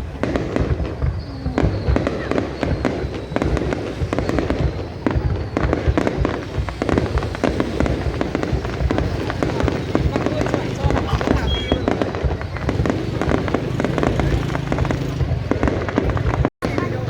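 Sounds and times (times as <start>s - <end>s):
fireworks bangs and booms: 0.0s - 17.0s
faint high whistling: 0.9s - 6.5s, 11.4s - 12.0s.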